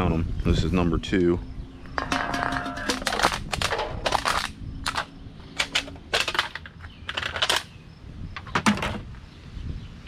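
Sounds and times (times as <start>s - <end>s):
metal cans clattering: 2.0s - 7.7s.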